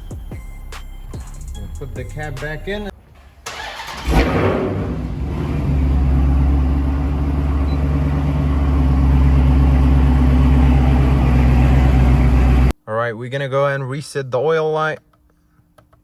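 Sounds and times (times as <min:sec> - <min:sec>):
car engine starting and idling: 0:02.8 - 0:12.8.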